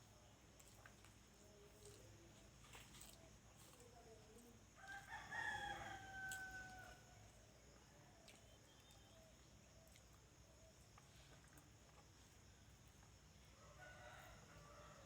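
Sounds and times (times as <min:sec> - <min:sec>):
rooster crowing: 0:04.8 - 0:07.0.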